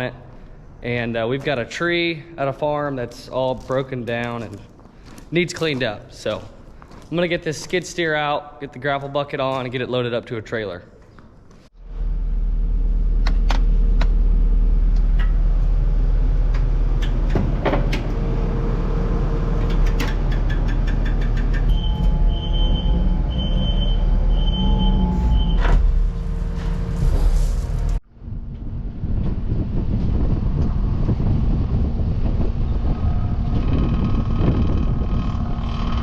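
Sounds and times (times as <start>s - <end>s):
diesel engine rumbling: 11.8s - 36.0s
short high warning beeps: 21.7s - 25.6s.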